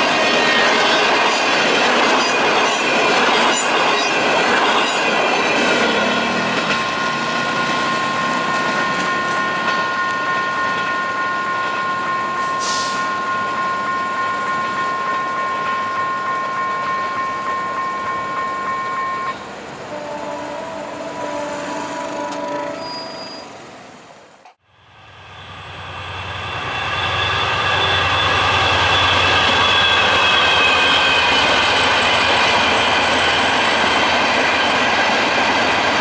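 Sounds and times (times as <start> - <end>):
train wheels clattering over rails: 0.0 - 16.0
steady high tone: 4.6 - 19.5.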